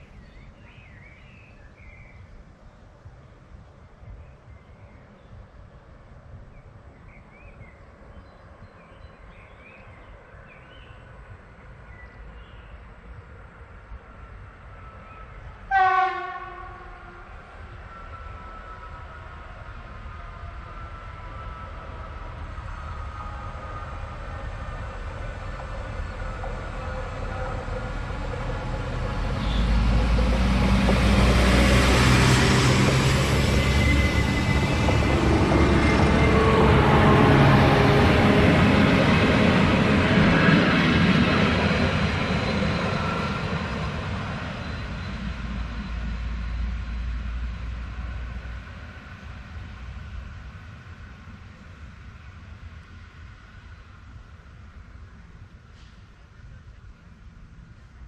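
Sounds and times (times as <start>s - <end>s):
diesel train engine hum: 0.0s - 58.0s
train wheels on rails: 15.4s - 56.9s.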